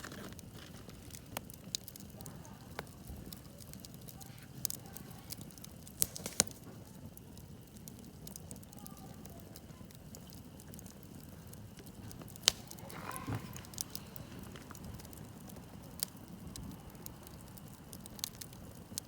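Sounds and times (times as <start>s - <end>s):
campfire crackling: 0.0s - 19.0s
sharp pops of burning wood: 0.0s - 19.0s.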